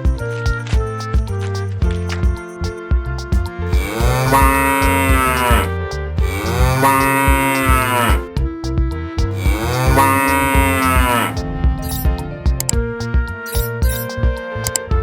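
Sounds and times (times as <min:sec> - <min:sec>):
background music with steady beat: 0:00.0 - 0:15.0
cattle mooing: 0:03.8 - 0:05.7, 0:06.3 - 0:08.2, 0:09.5 - 0:11.3.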